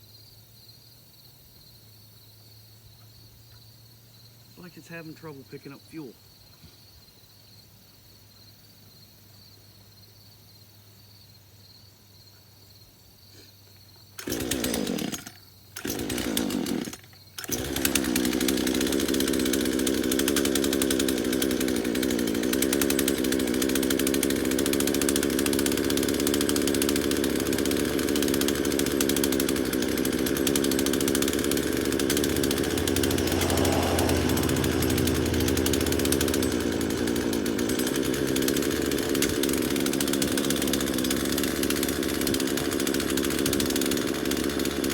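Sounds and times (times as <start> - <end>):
faint insect trill: 0.0 - 4.6, 6.1 - 14.2
chainsaw engine running: 4.6 - 6.1, 14.2 - 44.9.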